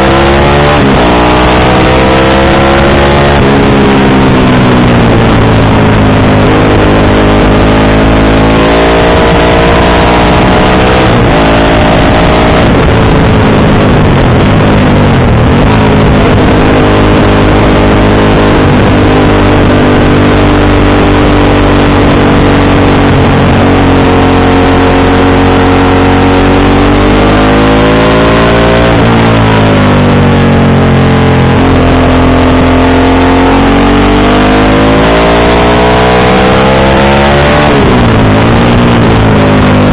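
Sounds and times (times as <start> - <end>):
loud rushing noise: 0.0 - 27.0, 33.7 - 39.9
motorcycle engine accelerating: 0.0 - 39.9.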